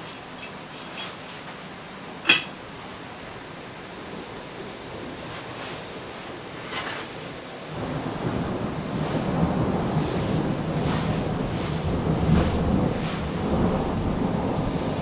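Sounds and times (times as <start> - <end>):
wind and rain hissing: 0.0 - 15.0
thunder rumbling: 7.7 - 15.0.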